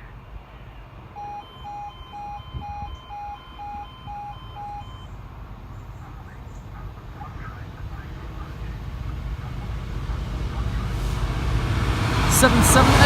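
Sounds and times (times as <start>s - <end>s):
level crossing alarm two tones: 1.2s - 5.1s.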